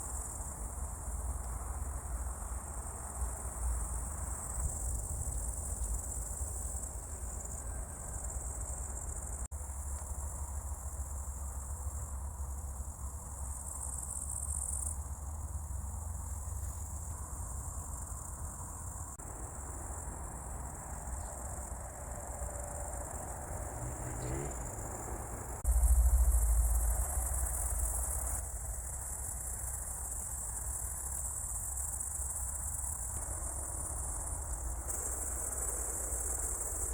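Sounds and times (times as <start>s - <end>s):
insects chirring: 0.0s - 36.9s
low rumble: 23.6s - 29.2s.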